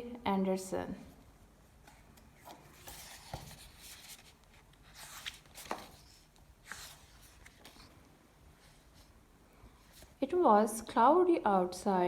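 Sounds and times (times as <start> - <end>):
paper rustling: 1.9 - 8.0.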